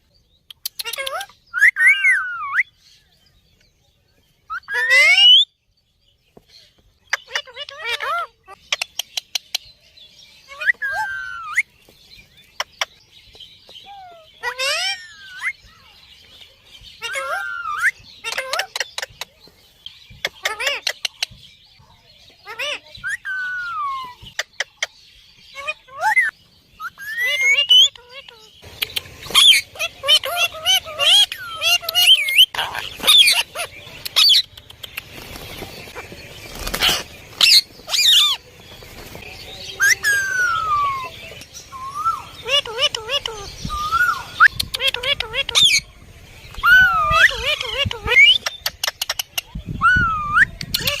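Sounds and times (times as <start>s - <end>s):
parrot calling: 0.7s - 2.7s, 4.5s - 5.5s, 7.1s - 9.4s, 10.5s - 11.7s, 13.8s - 15.6s, 17.0s - 19.1s, 25.5s - 35.0s, 36.8s - 38.4s, 39.8s - 45.9s, 46.6s - 51.0s.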